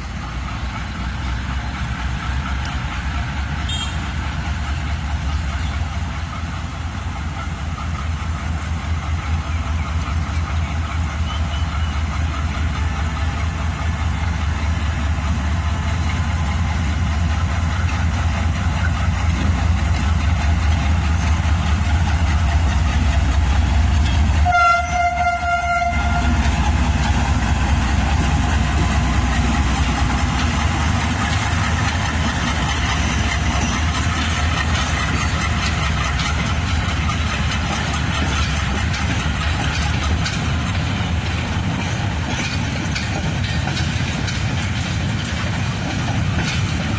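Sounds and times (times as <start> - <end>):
locomotive engine rumble: 0.0 - 46.9
train horn blast: 3.7 - 4.1, 24.4 - 26.4.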